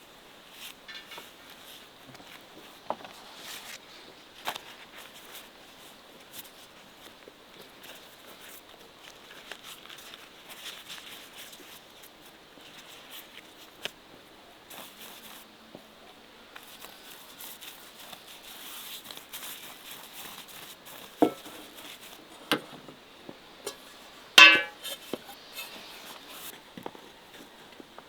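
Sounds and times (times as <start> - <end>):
utensils clinking on cookware: 23.7 - 24.9.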